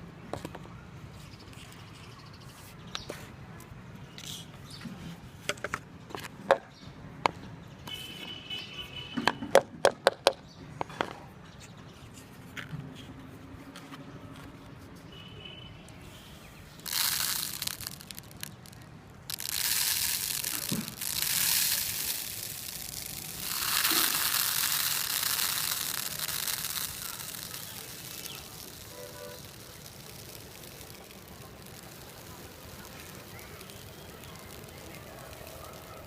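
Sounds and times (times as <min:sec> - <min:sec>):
dry rustling of seed and chaff: 0:16.0 - 0:36.0.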